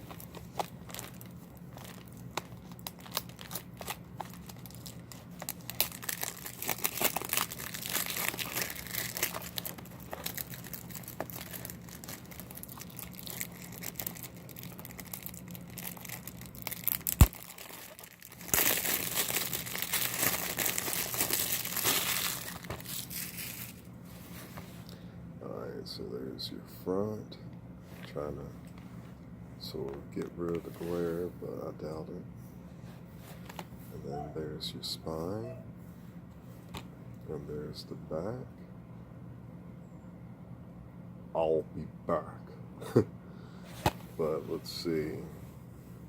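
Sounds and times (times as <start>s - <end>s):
plastic wrapping crinkling and tearing: 0.0s - 23.9s.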